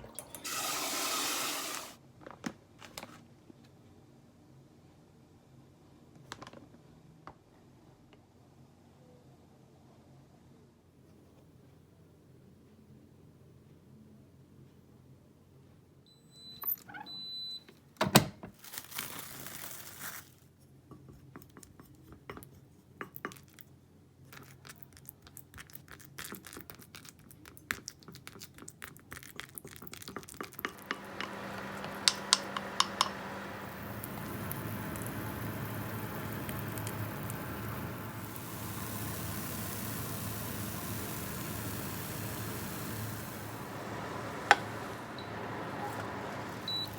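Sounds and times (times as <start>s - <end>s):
utensils clinking: 0.0s - 1.9s
microwave oven humming: 30.7s - 46.9s
short beeps: 46.6s - 46.9s.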